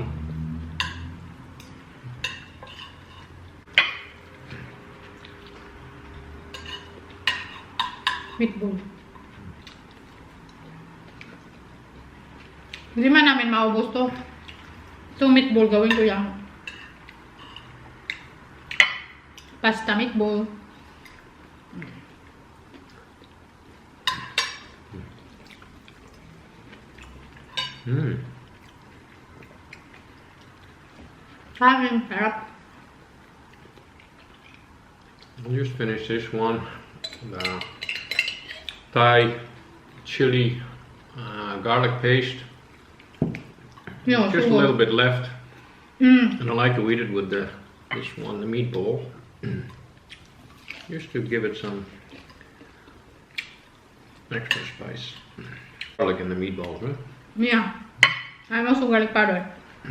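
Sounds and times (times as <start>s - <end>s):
cutlery clinking on plates: 6.5s - 8.4s, 37.0s - 38.8s, 58.0s - 58.4s.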